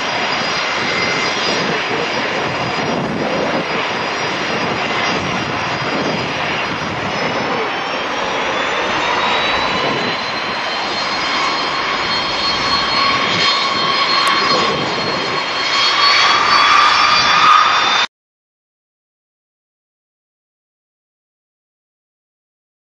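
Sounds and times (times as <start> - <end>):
jet engines whining: 0.0 - 18.1.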